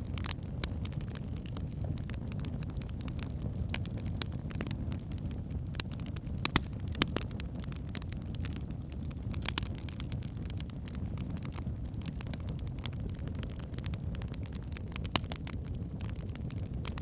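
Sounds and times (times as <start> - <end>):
logs crackling and popping: 0.0 - 17.0
fire flames rushing: 5.9 - 8.6, 9.4 - 17.0.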